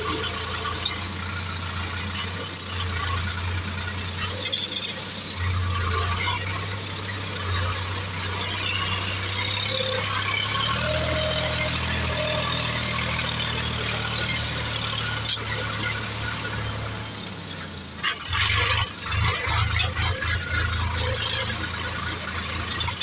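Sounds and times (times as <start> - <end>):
heavy diesel engine running: 0.0 - 23.0.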